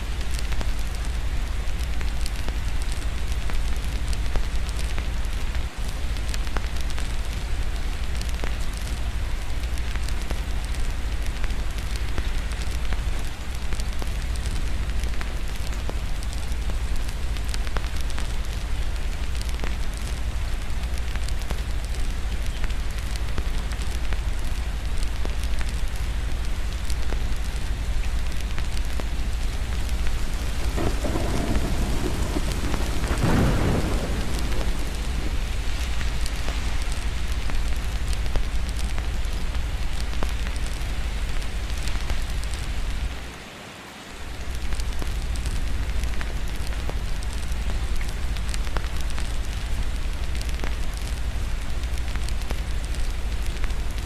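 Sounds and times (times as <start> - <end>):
steady rain: 0.0 - 54.0
fireplace crackling: 26.4 - 43.2
rolling thunder: 29.7 - 37.8.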